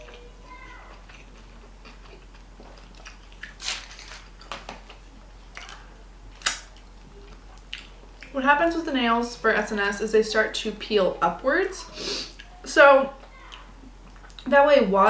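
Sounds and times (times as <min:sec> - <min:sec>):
person chewing and biting food: 0:00.0 - 0:08.3.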